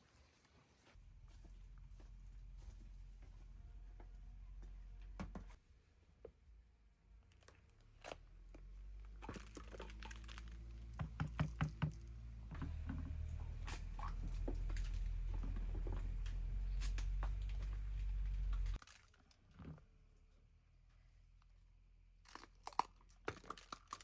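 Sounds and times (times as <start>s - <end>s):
knocks and crackling handling: 8.5s - 19.8s
low steady rumble: 11.9s - 18.8s.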